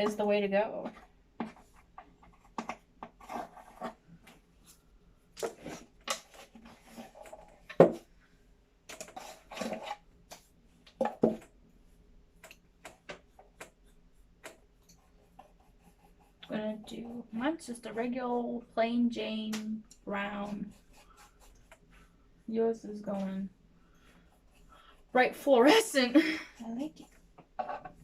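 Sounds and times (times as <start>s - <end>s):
taps and scrapes of painting supplies: 0.0s - 4.4s, 5.4s - 8.1s, 8.9s - 11.6s, 12.4s - 15.6s.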